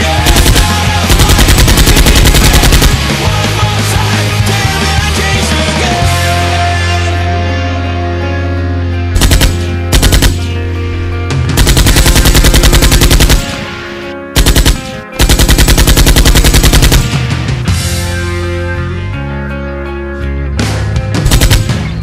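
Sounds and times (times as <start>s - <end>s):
automatic gunfire bursts: 0.0s - 3.4s, 9.2s - 10.6s, 11.6s - 17.3s, 21.2s - 22.0s
loud background music: 0.0s - 22.0s.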